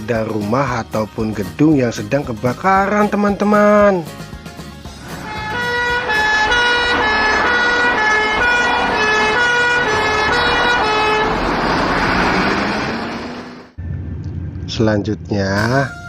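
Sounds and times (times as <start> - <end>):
two-tone siren: 5.1 - 13.5.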